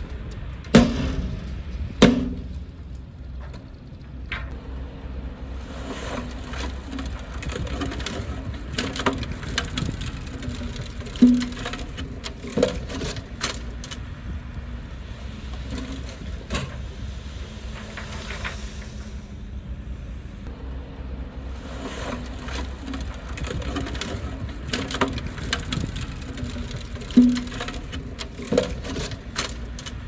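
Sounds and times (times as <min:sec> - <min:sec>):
sharp cracks and knocks: 0:00.0 - 0:04.6, 0:06.2 - 0:14.1, 0:15.5 - 0:16.9, 0:22.4 - 0:30.0
diesel engine low rumble: 0:00.0 - 0:30.0.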